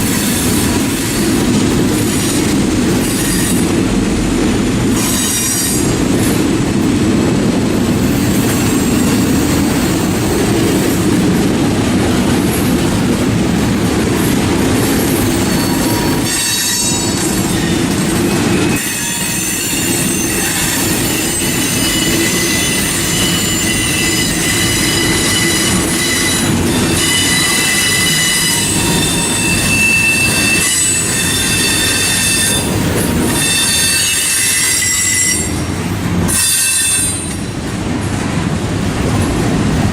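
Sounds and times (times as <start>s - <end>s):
train wheels rumbling on rail: 0.0s - 39.9s
wheel flange squeal: 15.4s - 35.7s.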